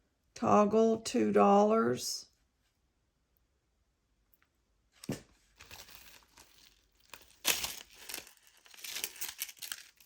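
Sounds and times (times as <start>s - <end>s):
jewelry rustling in hands: 5.0s - 10.0s.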